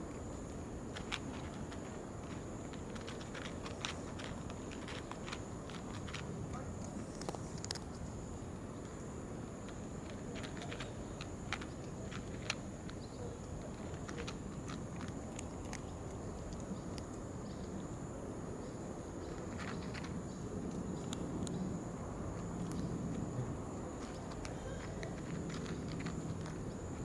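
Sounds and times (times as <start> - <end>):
outdoor background rumble: 0.0 - 27.0
light clicks and taps: 9.6 - 17.7.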